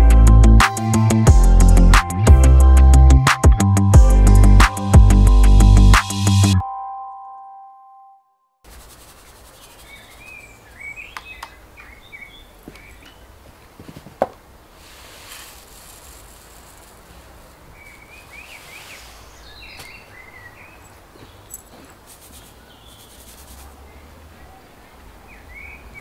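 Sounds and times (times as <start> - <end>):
small birds chirping: 8.7 - 13.6, 14.8 - 26.0.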